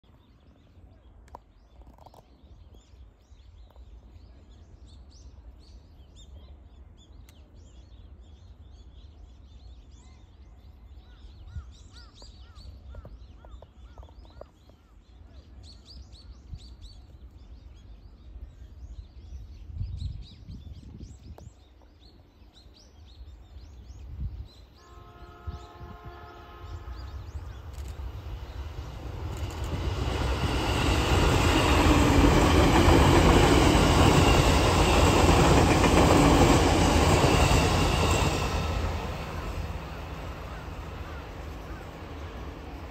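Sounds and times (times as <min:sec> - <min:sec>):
approaching train rush: 0:24.8 - 0:42.9.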